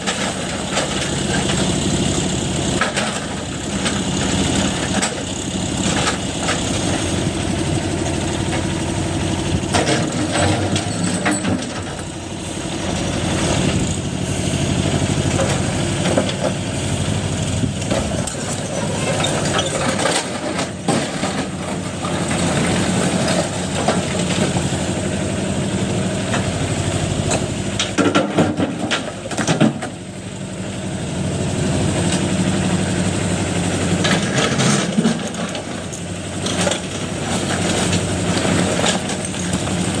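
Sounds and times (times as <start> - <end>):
diesel engine running: 0.0 - 40.0
knocks and clatters: 9.7 - 12.1.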